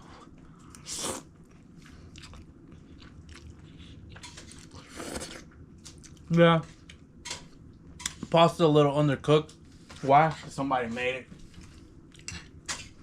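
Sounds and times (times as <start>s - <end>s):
person chewing food: 0.2s - 7.0s.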